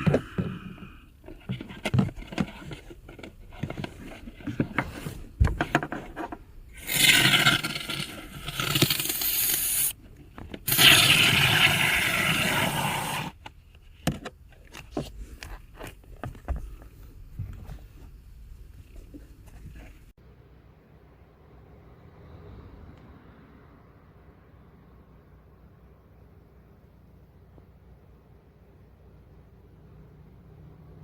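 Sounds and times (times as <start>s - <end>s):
aerosol can spraying: 6.8s - 10.0s, 10.7s - 13.3s.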